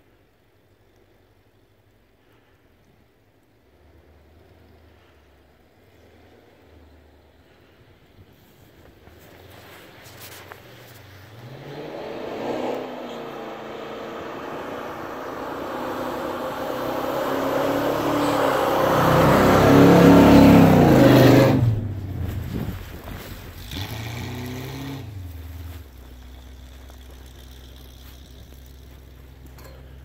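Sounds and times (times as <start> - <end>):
jeep engine revving: 10.6 - 30.0.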